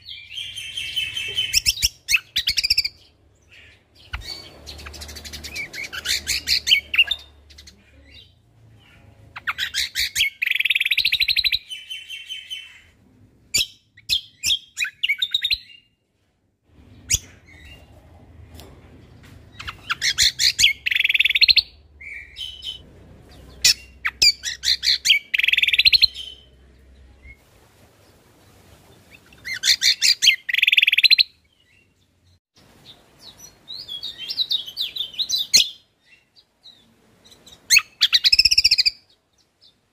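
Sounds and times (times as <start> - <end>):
songbird trilling: 19.6 - 22.8, 23.6 - 26.5.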